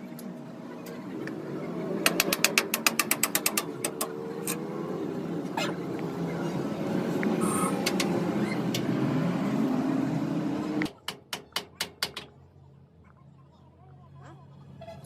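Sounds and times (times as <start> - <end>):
workshop machine running: 0.0 - 11.0
sharp clicks: 2.0 - 4.6.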